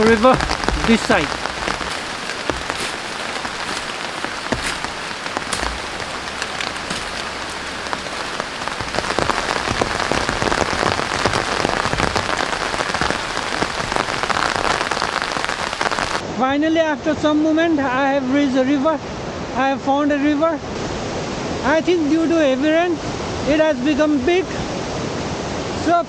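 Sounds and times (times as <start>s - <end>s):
heavy rain falling: 0.0s - 16.2s
raindrops ticking close by: 0.0s - 16.2s.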